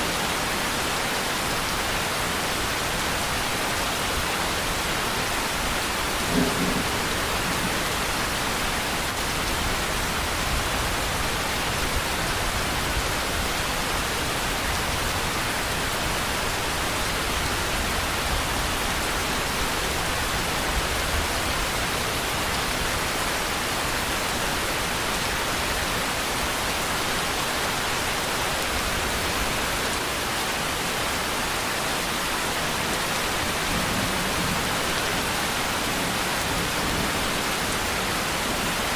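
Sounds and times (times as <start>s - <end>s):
steady rain: 0.0s - 38.9s
low thunder rumbling: 5.7s - 11.2s.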